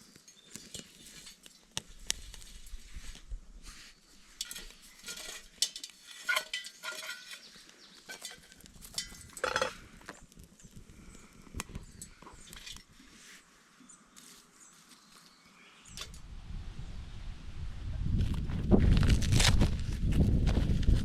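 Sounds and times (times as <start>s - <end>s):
rustling: 0.0s - 11.2s, 12.2s - 15.5s
metal cookware clinking: 4.4s - 9.9s.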